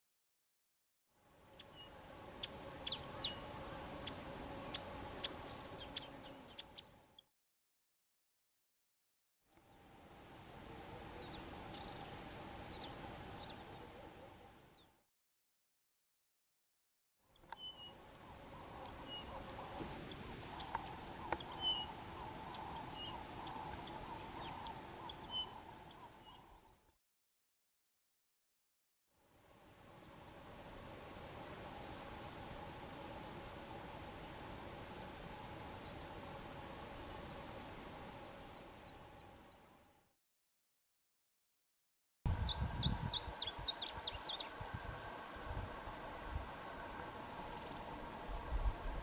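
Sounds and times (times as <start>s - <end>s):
lower twittering: 17.7s - 26.7s
songbird high thin calls: 18.5s - 26.6s.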